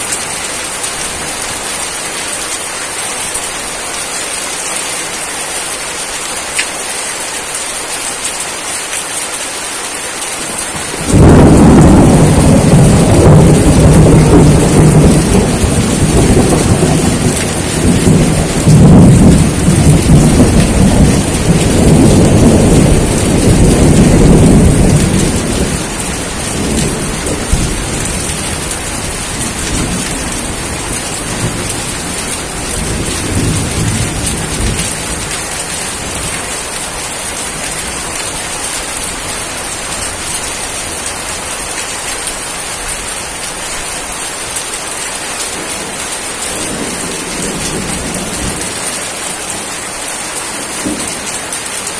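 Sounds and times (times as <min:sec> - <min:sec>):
heavy rainfall: 0:00.0 - 0:51.9
thunder rumbling: 0:10.6 - 0:39.2.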